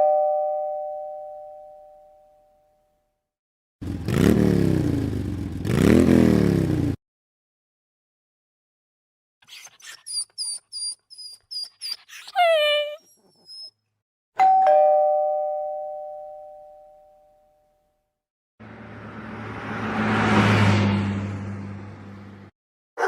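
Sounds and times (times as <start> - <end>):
two-tone doorbell chime: 0.0 - 2.9, 14.4 - 17.8
high squeaks and yelp-like call: 9.4 - 13.8.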